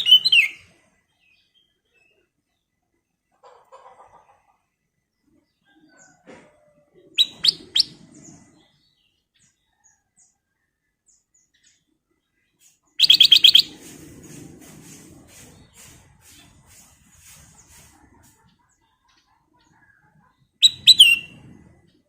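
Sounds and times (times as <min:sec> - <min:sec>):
bulbul calling: 0:07.2 - 0:08.0, 0:13.0 - 0:13.7, 0:20.6 - 0:21.3.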